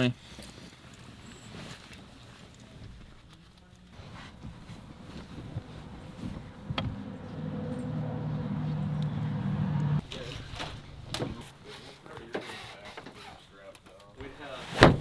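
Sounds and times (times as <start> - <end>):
vehicle engine running: 4.0 - 10.0.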